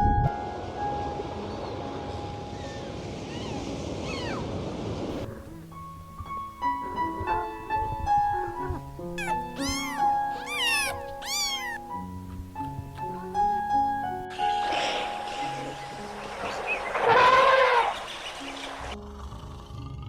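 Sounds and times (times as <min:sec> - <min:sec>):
gentle piano melody: 0:00.0 - 0:03.4, 0:05.2 - 0:16.8
cat meowing: 0:03.3 - 0:04.4, 0:09.2 - 0:11.9.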